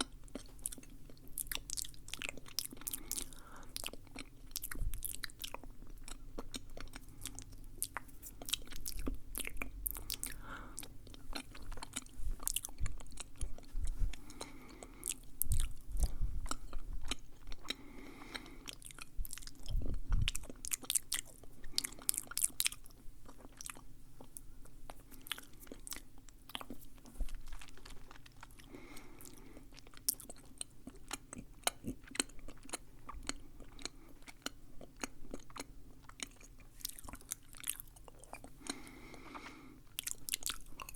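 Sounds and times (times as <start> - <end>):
chewing-like nibbling: 0.0 - 40.9
soft low thumps: 11.4 - 14.4.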